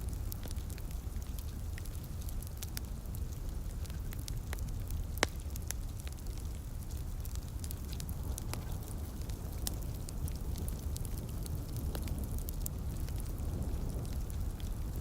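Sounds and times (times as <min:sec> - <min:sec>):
light rain hissing: 0:00.0 - 0:15.0
wood fire crackling and popping: 0:00.0 - 0:15.0.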